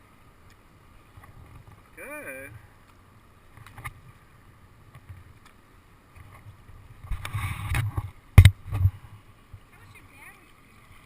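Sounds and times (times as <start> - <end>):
wind rumble on microphone: 6.1 - 10.2.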